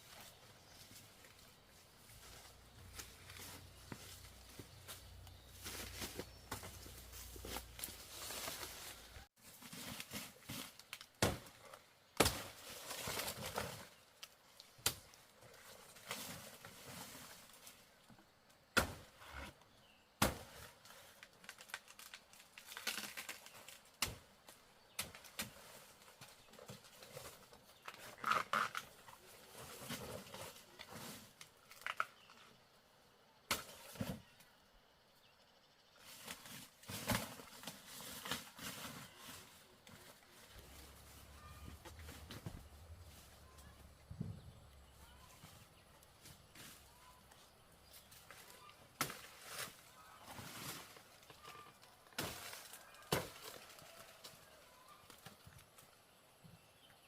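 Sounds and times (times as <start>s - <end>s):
rustling and handling noises: 0.0s - 18.0s, 36.0s - 56.0s.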